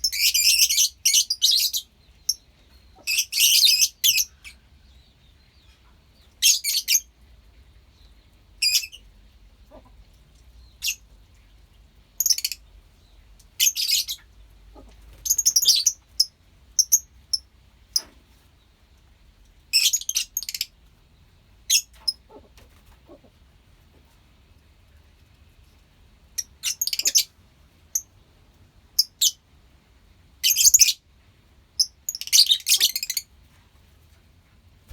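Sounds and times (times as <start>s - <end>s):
lovebirds chirping: 0.0s - 11.6s, 12.2s - 18.7s, 19.7s - 23.2s, 26.3s - 27.3s, 30.4s - 31.0s, 31.8s - 33.3s.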